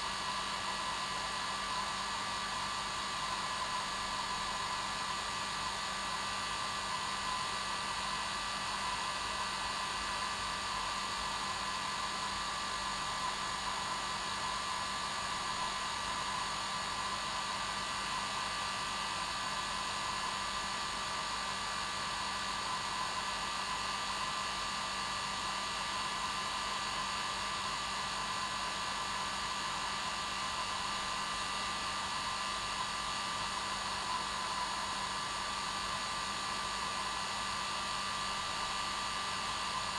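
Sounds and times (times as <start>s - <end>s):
hair dryer running: 27.6s - 39.9s.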